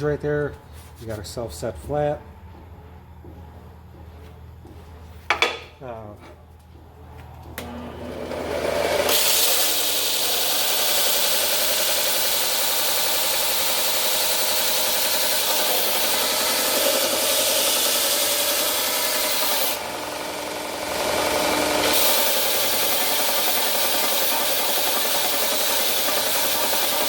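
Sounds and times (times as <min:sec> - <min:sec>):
motor hum: 0:06.4 - 0:10.0, 0:19.8 - 0:23.8
sander grinding metal: 0:07.6 - 0:27.0.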